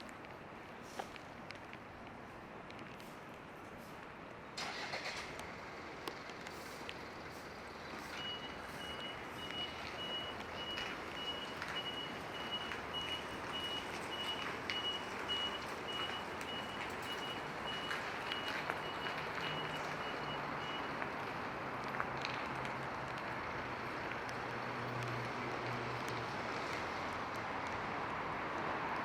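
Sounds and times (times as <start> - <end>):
raindrops ticking: 0.0 - 29.0
rain hissing: 4.6 - 27.4
vehicle reversing alarm beeping: 7.0 - 21.5.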